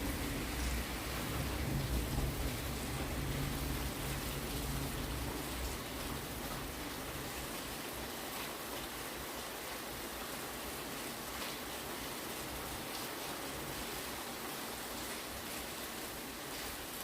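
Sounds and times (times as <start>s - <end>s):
distant thunder rumble: 0.0s - 6.4s
heavy rain falling: 0.0s - 17.0s.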